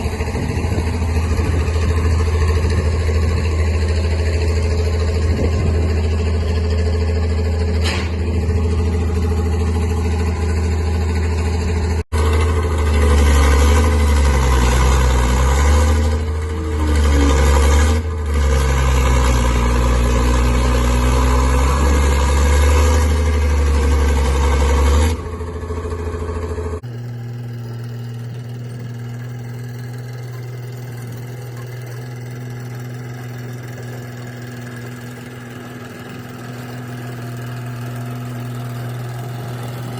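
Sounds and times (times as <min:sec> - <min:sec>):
tractor engine working: 0:00.0 - 0:39.9.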